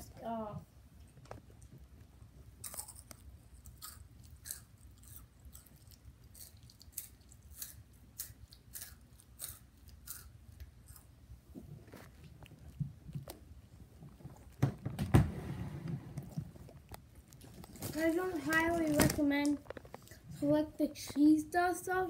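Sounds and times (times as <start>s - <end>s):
faint low hum: 0.0s - 22.0s
crunchy chips being chewed: 2.6s - 11.2s.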